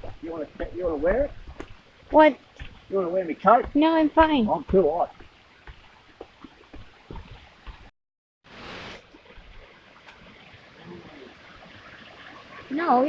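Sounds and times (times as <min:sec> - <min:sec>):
faint steady rushing noise: 0:00.0 - 0:07.9
footsteps on a track: 0:00.0 - 0:07.9.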